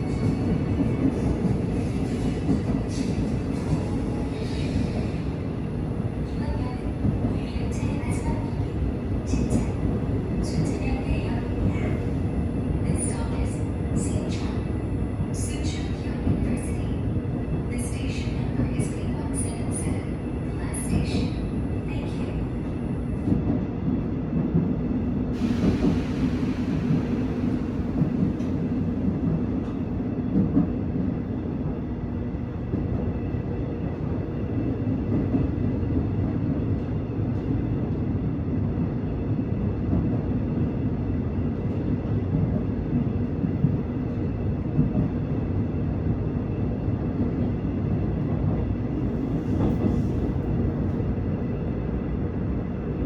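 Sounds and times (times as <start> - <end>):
train rumbling on track: 0.0 - 53.0.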